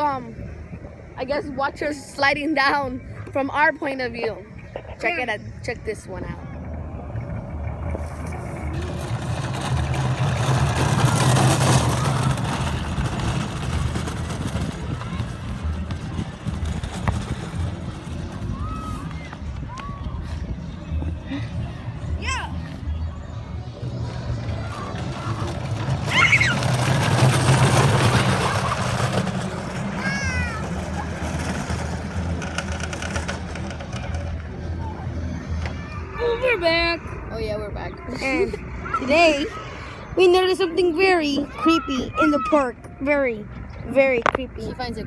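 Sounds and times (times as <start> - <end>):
wind noise on microphone: 0.0 - 28.4
plastic wheels rolling on pavement: 5.9 - 21.2, 23.6 - 38.2
high sliding squeals: 24.6 - 29.0.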